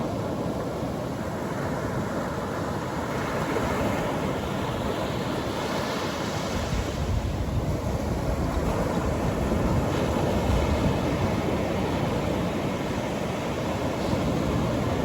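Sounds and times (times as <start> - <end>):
surf washing on a beach: 0.0 - 15.0
wind rumbling on microphone: 3.4 - 15.0.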